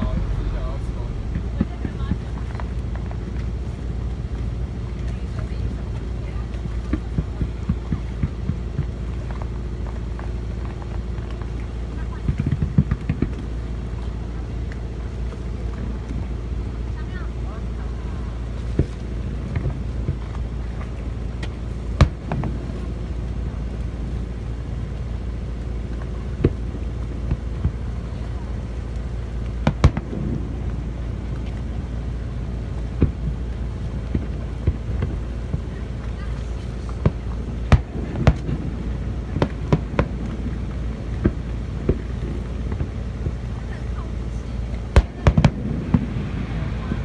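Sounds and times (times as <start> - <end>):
fireworks bangs: 0.0 - 3.1, 21.8 - 23.1, 26.3 - 47.0
low rumble: 0.0 - 7.7, 17.7 - 47.0
low background noise: 0.0 - 47.0.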